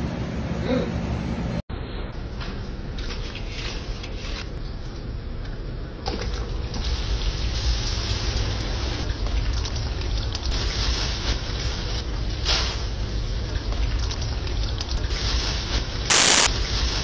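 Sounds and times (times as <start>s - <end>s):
food sizzling in hot oil: 16.1s - 16.5s.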